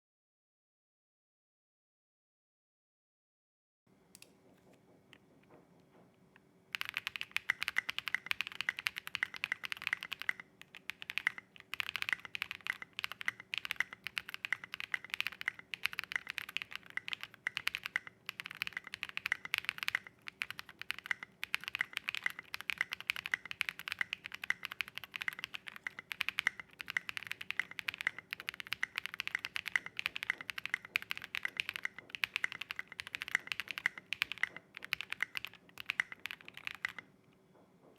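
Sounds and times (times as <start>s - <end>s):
mechanical keyboard typing: 6.7s - 37.1s.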